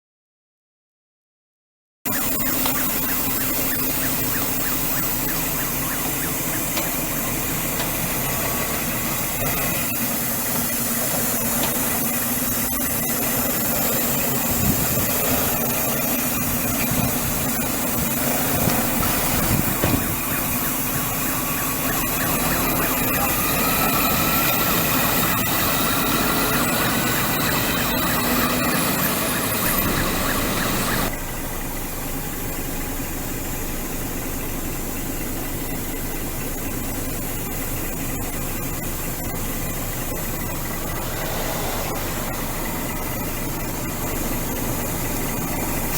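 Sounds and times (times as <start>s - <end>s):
diesel truck engine idling: 2.2s - 45.9s
faint thin rising tone: 40.2s - 44.9s.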